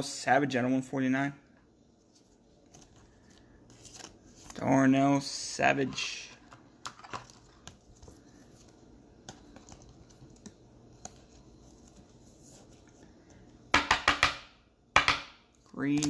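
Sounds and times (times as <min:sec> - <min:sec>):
cards handled with soft scratches: 0:01.6 - 0:04.8, 0:05.9 - 0:13.6.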